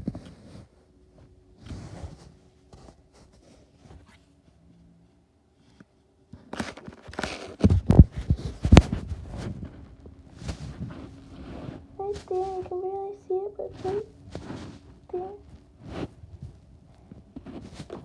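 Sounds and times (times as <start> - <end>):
tablet handling scrapes and rustling: 6.4 - 12.5, 15.7 - 18.0.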